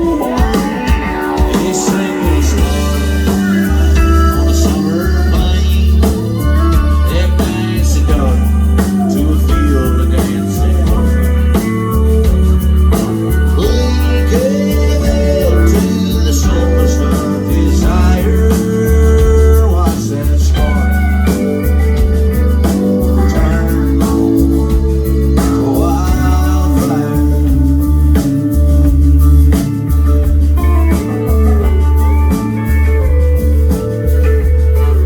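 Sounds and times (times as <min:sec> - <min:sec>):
country rock band playing: 0:00.0 - 0:35.0
electric guitar lead: 0:00.0 - 0:35.0.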